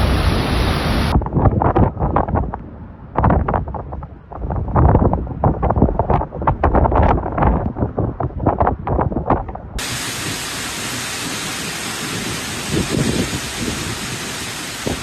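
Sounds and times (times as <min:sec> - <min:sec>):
heavy rain hiss: 0:00.0 - 0:01.2, 0:09.8 - 0:15.0
wind buffeting microphone: 0:00.0 - 0:15.0.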